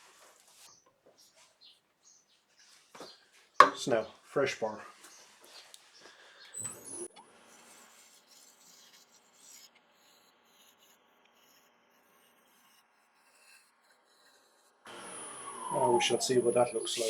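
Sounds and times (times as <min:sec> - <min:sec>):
scraper on turning wooden bowl: 0:06.8 - 0:15.7.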